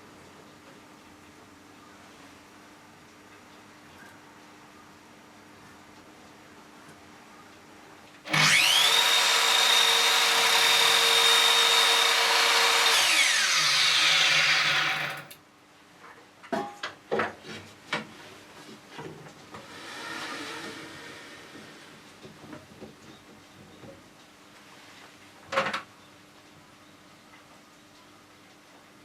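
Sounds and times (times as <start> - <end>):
electric power tool whine: 8.3 - 15.4.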